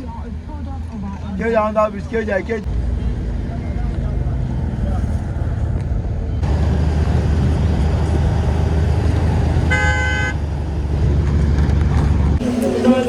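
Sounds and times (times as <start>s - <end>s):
road traffic rumble: 0.0s - 13.0s
vehicle horn toot: 9.7s - 10.4s.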